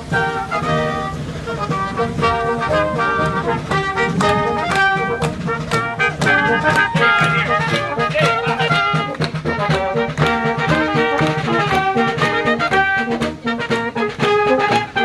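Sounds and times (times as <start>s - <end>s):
lively brass music: 0.0s - 15.0s.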